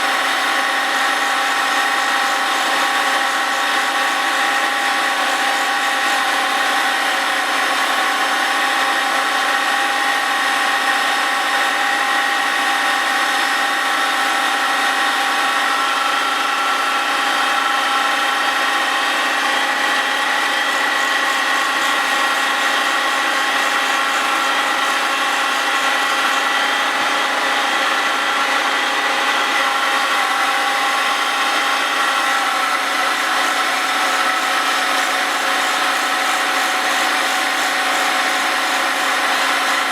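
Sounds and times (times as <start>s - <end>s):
grinding wheel whine and hiss: 14.6s - 39.9s.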